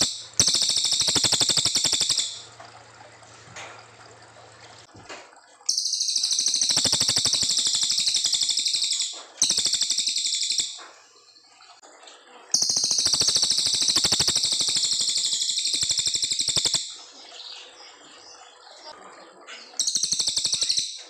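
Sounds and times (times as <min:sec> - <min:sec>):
songbird singing fast trills: 0:00.0 - 0:02.5, 0:05.7 - 0:10.8, 0:12.6 - 0:17.6, 0:19.6 - 0:21.0.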